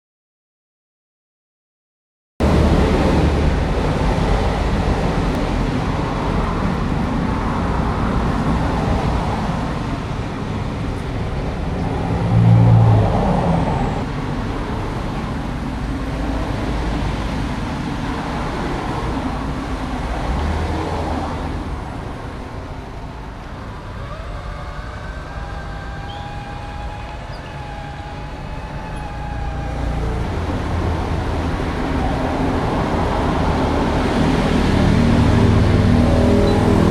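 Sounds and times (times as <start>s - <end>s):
wavering whine: 22.9s - 34.3s.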